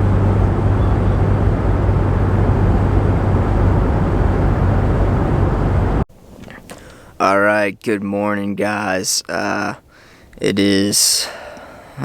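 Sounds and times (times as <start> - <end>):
rushing noise: 0.0 - 6.1
engine rumbling: 0.0 - 7.0.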